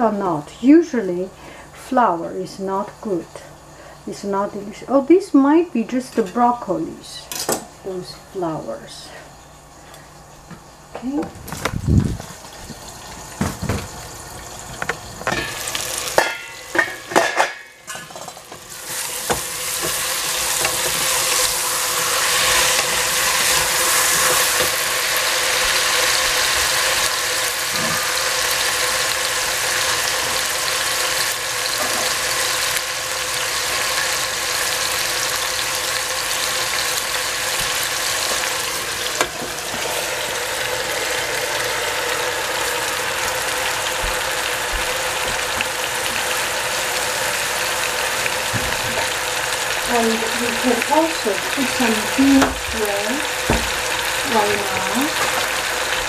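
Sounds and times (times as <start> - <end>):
vegetables sizzling in hot oil: 5.3 - 56.0
pot and lid clanking: 14.7 - 21.5, 31.7 - 32.2.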